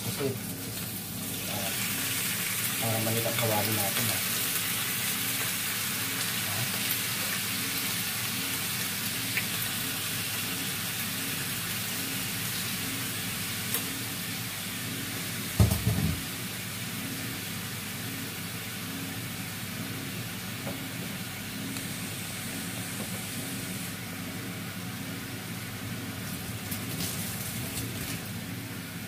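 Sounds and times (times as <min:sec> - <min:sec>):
squid sizzling in a pan: 0:00.0 - 0:24.0
dull knock: 0:15.6 - 0:16.2.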